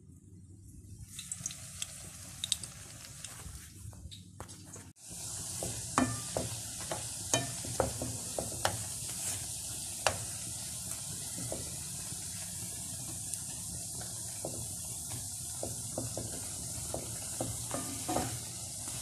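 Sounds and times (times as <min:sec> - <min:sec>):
dough sizzling in hot oil: 0:01.0 - 0:03.8, 0:04.7 - 0:19.0
spatula scraping a pan: 0:17.1 - 0:19.0.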